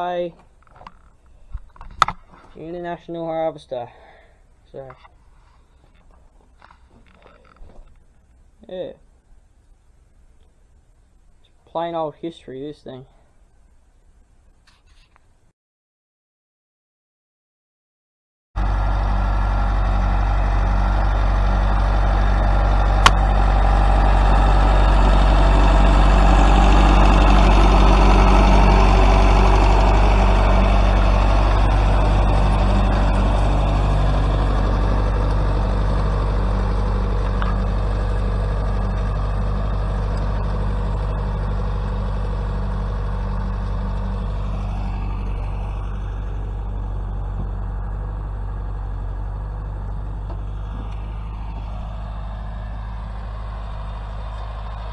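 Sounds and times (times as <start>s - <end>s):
tractor engine running: 0.0s - 15.5s, 18.6s - 54.9s
sharp click: 0.7s - 2.6s.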